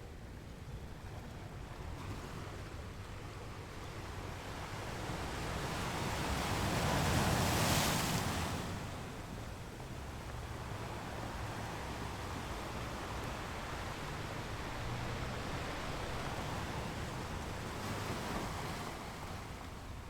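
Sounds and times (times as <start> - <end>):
ocean waves on a beach: 0.1 - 20.0.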